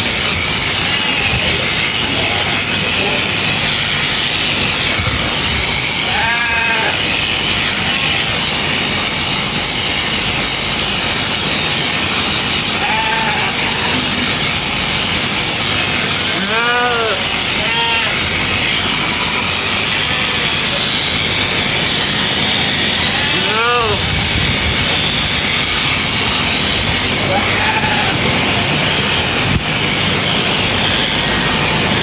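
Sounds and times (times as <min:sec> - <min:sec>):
electric shearing clippers buzzing: 0:00.0 - 0:32.0
sheep bleating: 0:05.2 - 0:07.2, 0:12.7 - 0:14.4, 0:16.0 - 0:18.3, 0:19.0 - 0:20.9, 0:23.1 - 0:24.0, 0:27.2 - 0:28.4.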